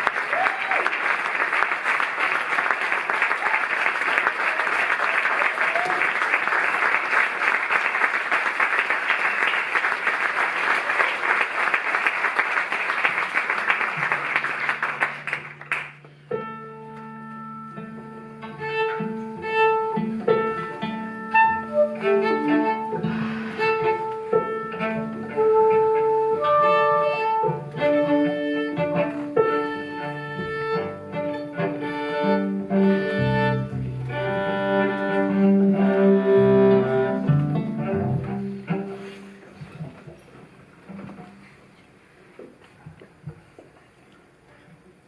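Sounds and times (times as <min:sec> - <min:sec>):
audience applause: 0:00.0 - 0:16.1
string ensemble bowing: 0:16.3 - 0:39.6.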